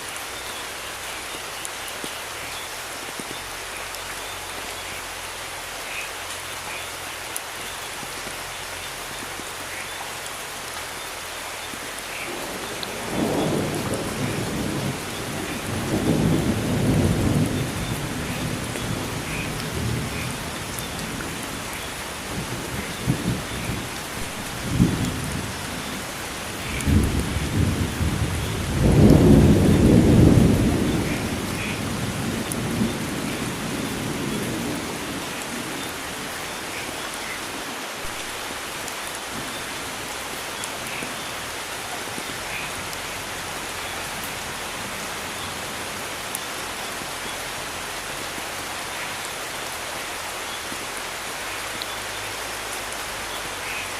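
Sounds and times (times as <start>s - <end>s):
steady rain falling: 0.0s - 53.9s
thunder rumbling: 12.3s - 37.0s.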